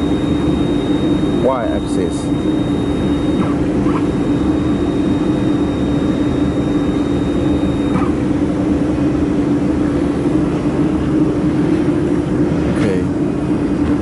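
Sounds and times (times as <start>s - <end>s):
thin high whine: 0.0s - 10.3s.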